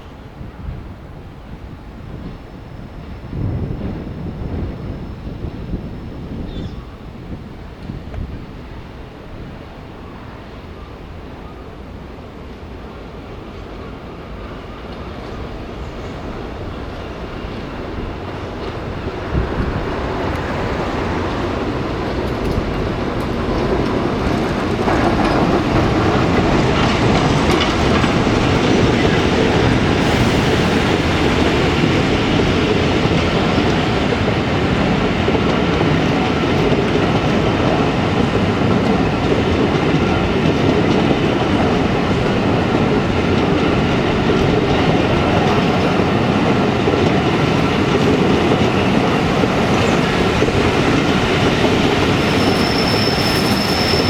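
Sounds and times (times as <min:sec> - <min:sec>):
train wheels clattering on track: 0:12.4 - 0:54.0.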